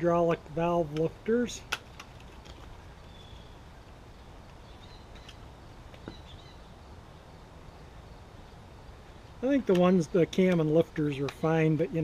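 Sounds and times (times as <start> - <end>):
faint bird chirps: 3.0 - 6.9.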